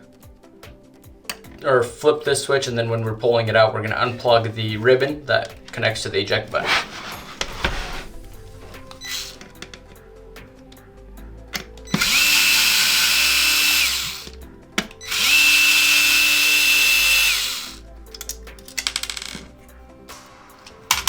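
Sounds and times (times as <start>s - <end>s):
electric screwdriver motor whine: 9.0s - 9.4s, 11.9s - 14.4s, 15.0s - 17.8s.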